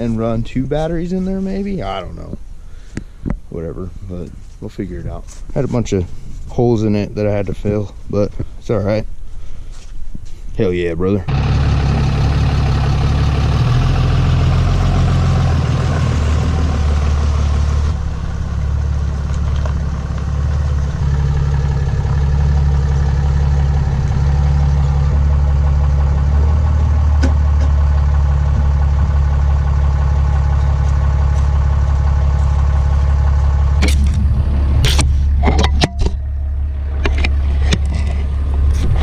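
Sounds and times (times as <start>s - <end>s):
truck engine idling: 11.3s - 39.0s.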